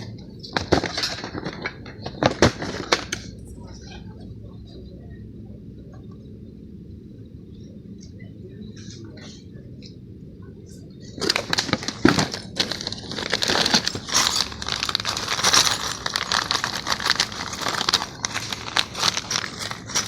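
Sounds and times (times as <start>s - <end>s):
packaging crinkling and rustling: 11.2s - 20.0s.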